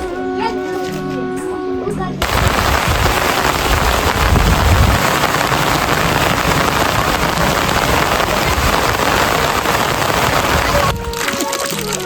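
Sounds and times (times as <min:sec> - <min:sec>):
loud rushing noise: 0:02.2 - 0:10.9
low rumble: 0:02.2 - 0:10.9.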